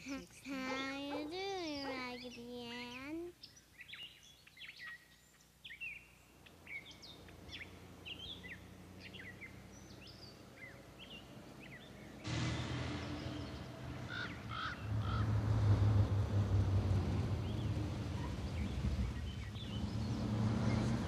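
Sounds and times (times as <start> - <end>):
small birds chirping: 0.0 - 12.3, 17.3 - 21.0.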